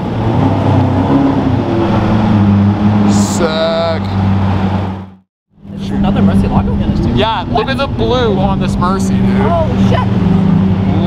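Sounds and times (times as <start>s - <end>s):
car engine low drone: 0.0s - 11.0s.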